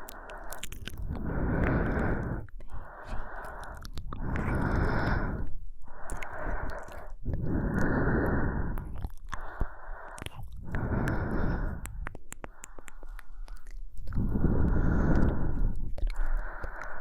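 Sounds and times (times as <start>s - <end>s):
slow breathing close to microphone: 0.0s - 17.0s
wet mouth clicks: 0.0s - 17.0s.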